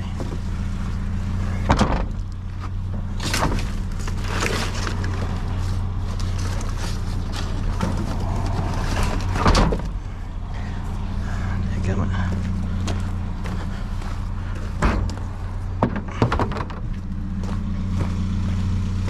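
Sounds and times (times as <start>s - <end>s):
vehicle engine humming: 0.0s - 19.0s
knocks and rattles: 1.5s - 10.3s, 14.6s - 17.6s.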